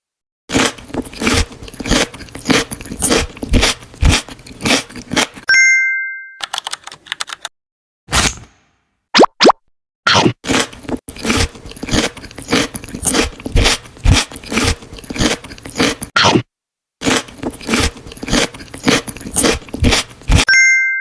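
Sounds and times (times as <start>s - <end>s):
crunchy chewing of food: 0.5s - 5.5s, 10.1s - 20.5s.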